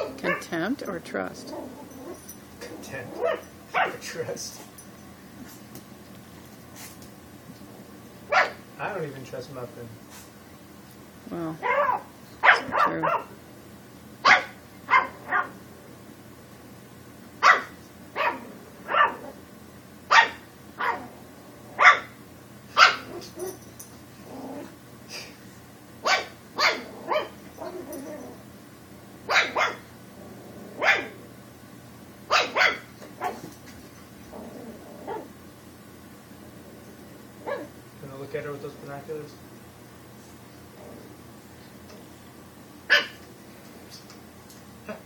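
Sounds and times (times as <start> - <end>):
puppy barking: 0.0 - 0.5, 3.1 - 4.0, 8.3 - 8.6, 11.6 - 13.4, 14.2 - 15.6, 17.4 - 19.4, 20.1 - 21.1, 21.8 - 22.2, 22.8 - 23.6, 26.0 - 28.2, 29.3 - 29.9, 30.8 - 31.2, 32.3 - 33.4, 37.4 - 37.7, 42.9 - 43.2.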